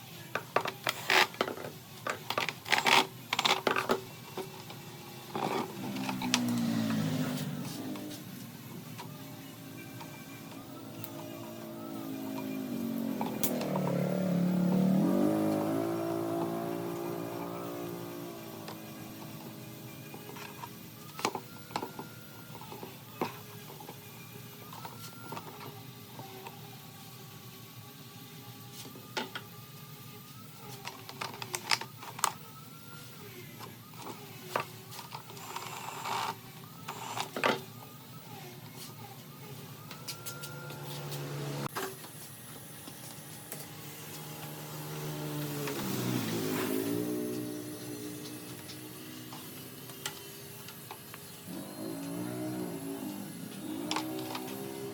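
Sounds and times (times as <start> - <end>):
motor humming: 4.4 - 26.8, 38.2 - 54.9.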